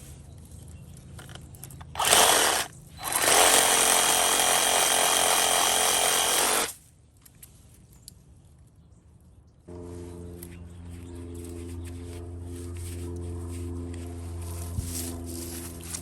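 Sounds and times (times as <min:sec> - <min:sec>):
reciprocating saw running: 0:01.9 - 0:06.8.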